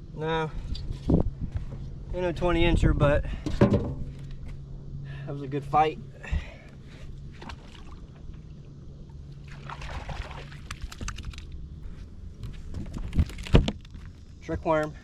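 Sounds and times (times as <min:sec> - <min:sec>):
steady low hum: 0:00.0 - 0:15.0
heavy thumps: 0:03.4 - 0:04.3
water splashing and sloshing: 0:06.4 - 0:14.3.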